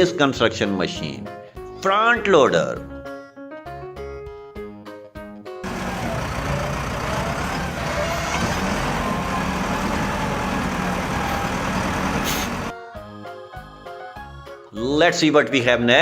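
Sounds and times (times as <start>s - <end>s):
heavy vehicle engine running: 5.6s - 12.7s.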